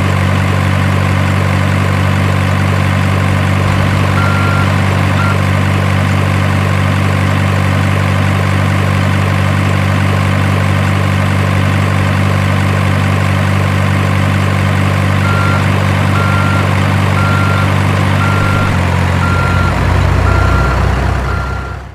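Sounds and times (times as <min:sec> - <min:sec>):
diesel truck engine idling: 0:00.0 - 0:21.9
reversing beeper: 0:03.6 - 0:05.6, 0:15.2 - 0:21.9.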